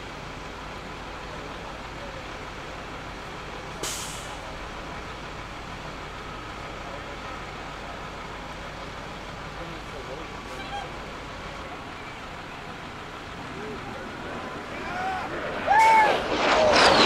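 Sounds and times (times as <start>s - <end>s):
fighter jet engine roar: 0.0s - 5.9s, 9.7s - 17.0s
sharp crack: 15.1s - 17.0s.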